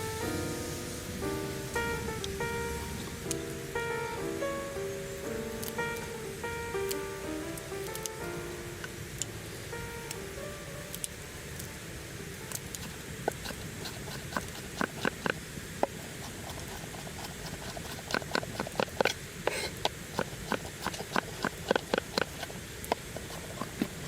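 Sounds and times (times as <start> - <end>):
low background noise: 0.0 - 24.0
sharp taps and knocks: 12.8 - 24.0.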